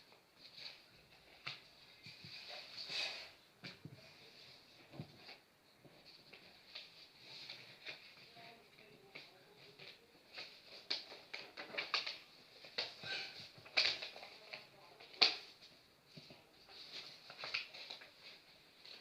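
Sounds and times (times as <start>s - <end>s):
paper crinkling and creasing: 0.0s - 19.0s.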